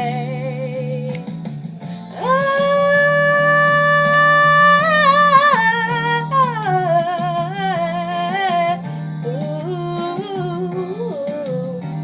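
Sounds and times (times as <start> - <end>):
low musical accompaniment: 0.0 - 12.0
person singing wordless vocal run: 2.1 - 8.8.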